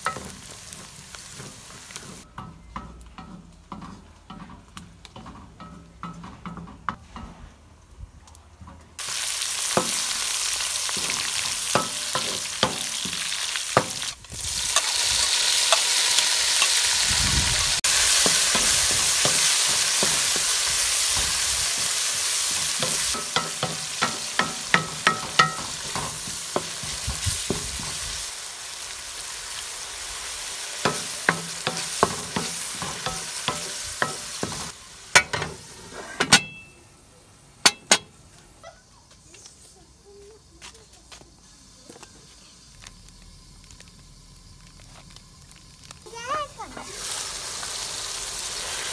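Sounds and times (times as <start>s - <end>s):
masala sizzling in oil: 0.0s - 5.7s, 9.0s - 38.4s, 39.8s - 48.9s
spatula scraping and knocking pan: 0.0s - 7.5s, 10.9s - 14.1s, 17.8s - 28.0s, 30.8s - 36.7s.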